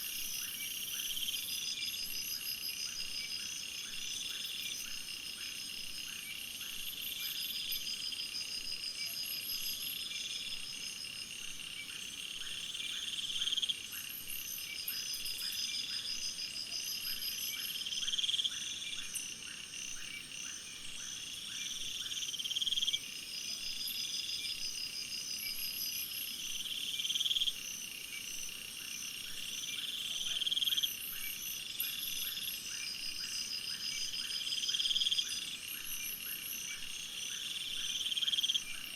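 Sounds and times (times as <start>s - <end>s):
insects and frogs calling: 0.0s - 38.9s.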